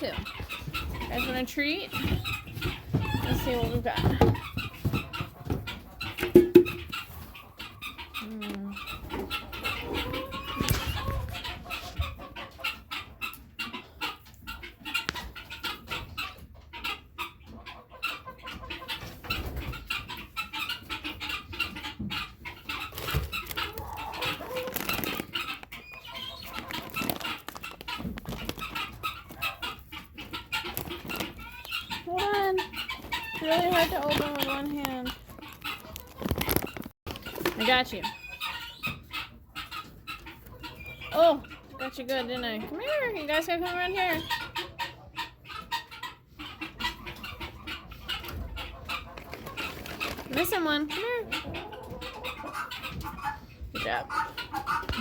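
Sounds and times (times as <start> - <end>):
chickens clucking: 0.0 - 55.0
clicks and rustles: 22.9 - 29.4, 32.9 - 37.7.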